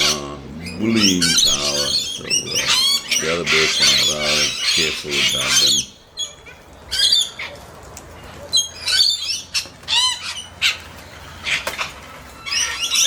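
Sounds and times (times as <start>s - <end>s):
corellas squawking: 0.0s - 7.4s.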